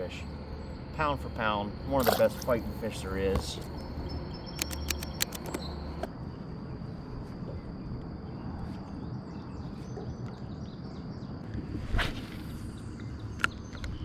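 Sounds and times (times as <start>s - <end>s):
insect drone: 0.0s - 14.0s
sharp clicks: 4.5s - 6.1s.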